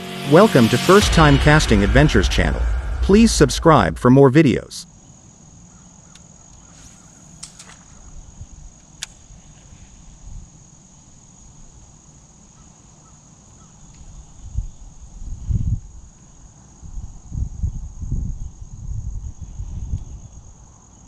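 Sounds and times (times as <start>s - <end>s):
low rumble: 0.0s - 4.8s
sharp clicks: 8.8s - 9.2s.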